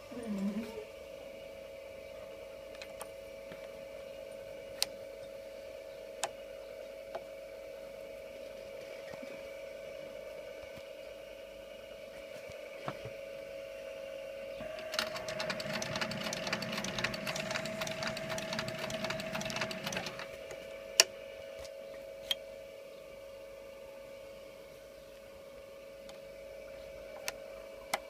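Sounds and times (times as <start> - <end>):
steady machine hum: 14.2 - 22.6
sewing machine needle rattle: 14.6 - 20.4.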